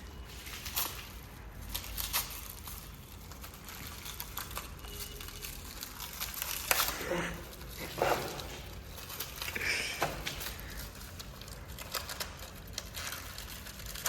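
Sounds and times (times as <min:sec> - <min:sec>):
packaging crinkling: 0:00.0 - 0:14.0.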